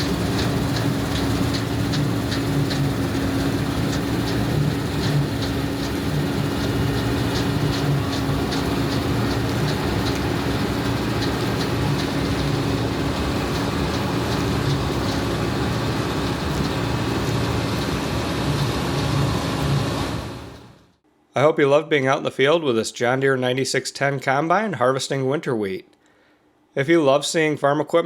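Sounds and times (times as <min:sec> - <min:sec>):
light regular ticking: 0:00.0 - 0:19.3
pulsing low hum: 0:00.0 - 0:20.8
combine harvester drone: 0:00.0 - 0:20.9.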